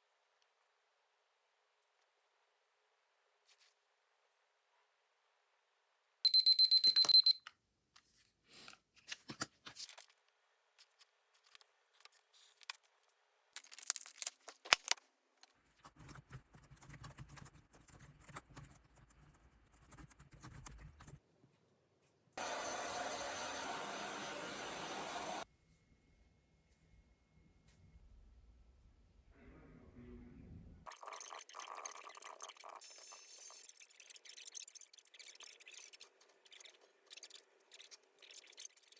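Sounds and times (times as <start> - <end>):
electronic alarm beeping: 6.3 - 7.5
clicks and handling noises: 7.0 - 19.0.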